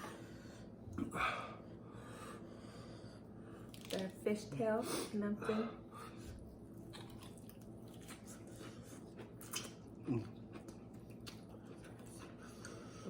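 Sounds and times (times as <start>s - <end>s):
faint chewing: 6.7s - 13.0s.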